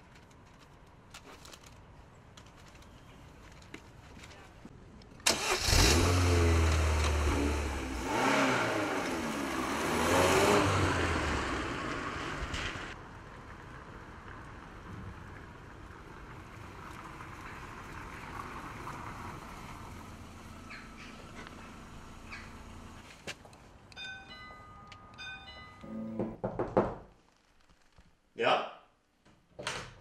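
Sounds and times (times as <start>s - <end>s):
car engine revving: 5.3s - 13.0s
car driving slowly: 5.6s - 23.9s.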